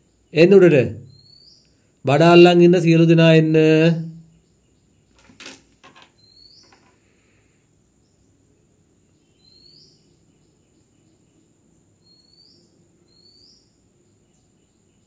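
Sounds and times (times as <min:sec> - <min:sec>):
faint knocks: 0:05.2 - 0:07.0.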